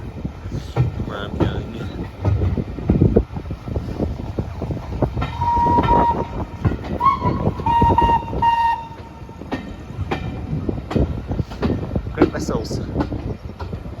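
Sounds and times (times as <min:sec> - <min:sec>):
train knocking and clanking: 0:00.0 - 0:14.0
steam locomotive whistle blasts: 0:05.4 - 0:09.4.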